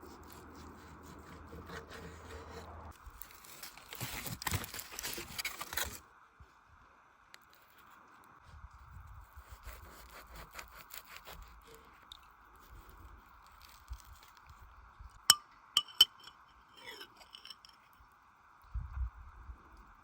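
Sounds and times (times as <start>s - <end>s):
light ticking and scraping: 11.6s - 18.1s.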